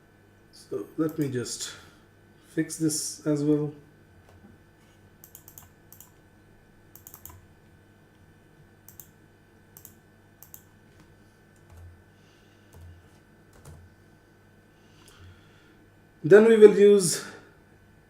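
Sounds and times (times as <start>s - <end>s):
faint steady hum: 0.0s - 18.0s
keyboard typing: 5.2s - 6.2s, 6.9s - 7.4s, 8.9s - 9.2s, 9.8s - 10.8s, 11.6s - 11.9s, 12.7s - 12.9s, 13.5s - 13.8s.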